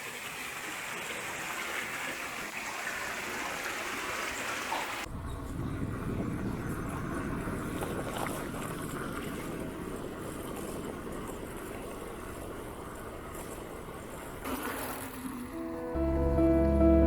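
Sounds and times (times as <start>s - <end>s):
wind buffeting microphone: 5.0s - 14.4s.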